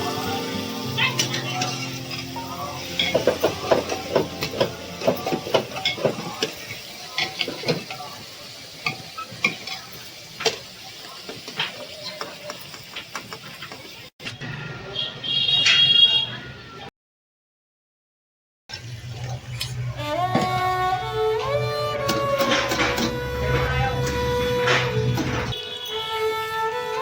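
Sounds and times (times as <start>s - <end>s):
food sizzling in a frying pan: 0.0s - 14.1s
utensil scraping and knocking pan: 3.0s - 6.6s.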